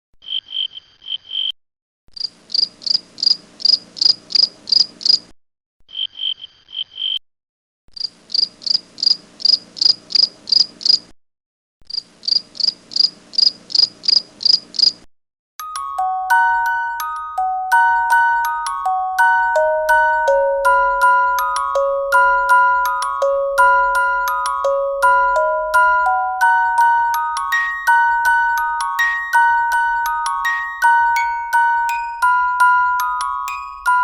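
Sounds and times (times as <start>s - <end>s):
grasshopper chirping: 2.2s - 5.2s, 8.0s - 11.0s, 11.9s - 15.0s
glockenspiel tune: 15.6s - 34.0s.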